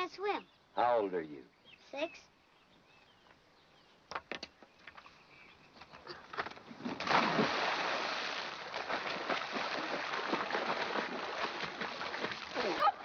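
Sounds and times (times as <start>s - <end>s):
continuous splashing and thrashing: 6.0s - 13.0s
loud water splash: 6.8s - 13.0s.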